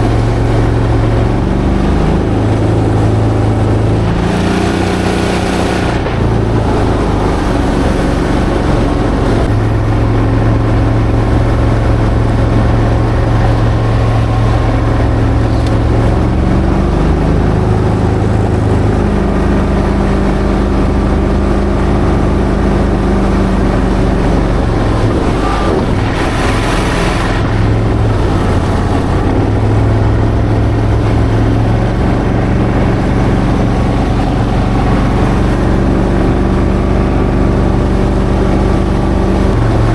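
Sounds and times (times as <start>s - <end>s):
vehicle engine running: 0.0s - 39.9s
brief rushing surges: 21.4s - 39.9s.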